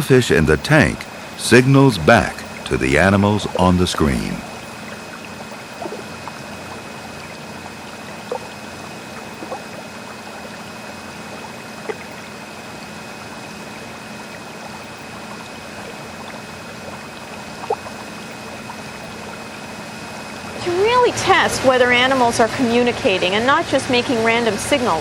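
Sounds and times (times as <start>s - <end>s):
low hum: 0.0s - 22.2s
aquarium water trickling: 0.1s - 25.0s
drips or bubbles plinking: 4.3s - 13.6s, 14.4s - 19.7s.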